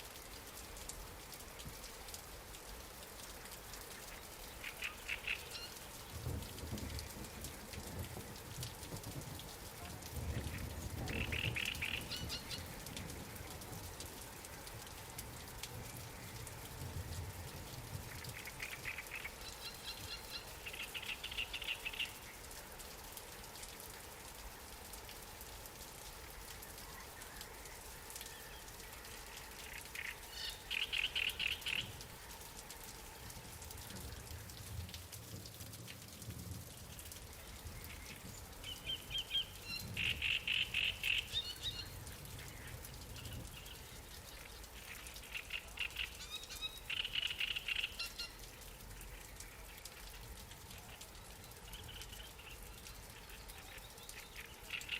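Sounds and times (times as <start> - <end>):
light rain pattering: 0.0 - 54.9
trilled bird calls: 4.1 - 6.0, 10.4 - 12.8, 18.1 - 22.4, 29.6 - 32.0, 37.4 - 48.4, 51.7 - 54.9.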